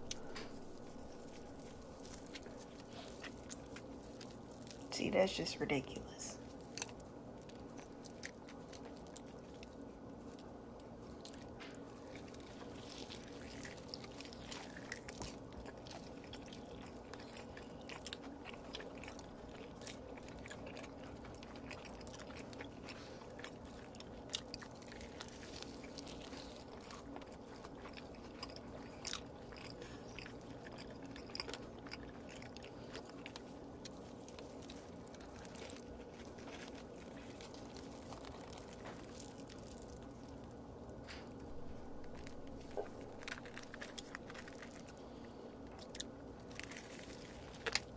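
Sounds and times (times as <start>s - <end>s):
person chewing food: 0.0s - 4.9s, 6.4s - 47.9s
low hum: 0.0s - 6.6s, 33.3s - 46.0s.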